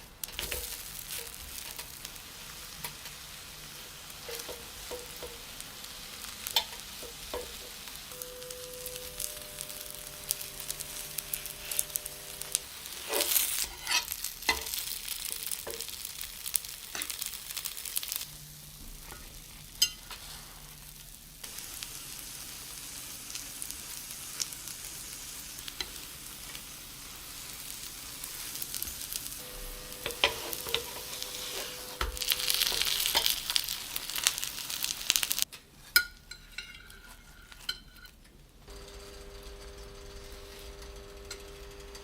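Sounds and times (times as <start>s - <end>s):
food sizzling in a frying pan: 0.0s - 38.1s, 38.7s - 42.0s
utensil clicking against pan: 4.2s - 5.6s, 6.4s - 8.0s.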